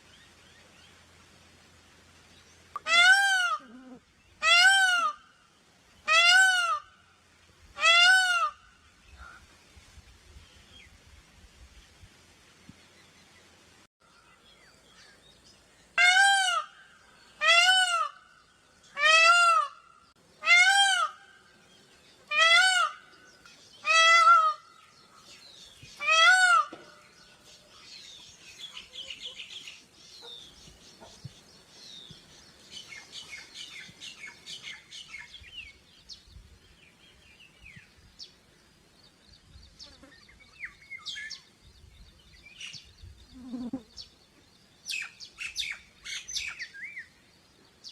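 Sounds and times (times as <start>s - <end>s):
peacock calling: 2.7s - 7.1s, 7.8s - 9.5s, 16.0s - 31.2s, 43.3s - 44.0s
small birds chirping: 26.7s - 47.9s.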